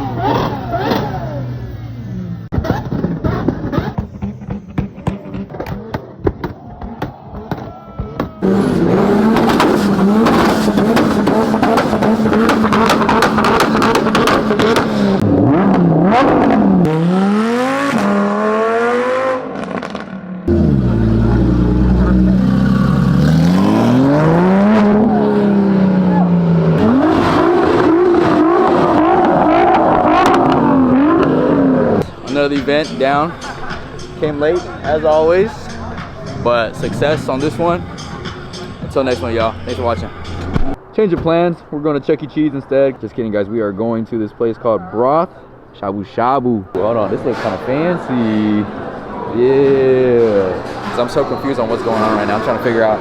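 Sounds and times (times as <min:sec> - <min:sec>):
car engine revving: 0:00.0 - 0:40.8
exhaust crackles and pops: 0:02.5 - 0:17.0, 0:26.7 - 0:32.1.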